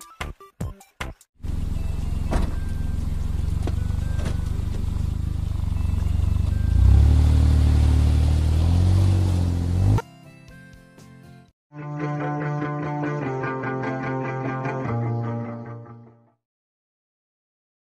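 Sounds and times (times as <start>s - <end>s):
car engine droning: 1.4s - 10.0s.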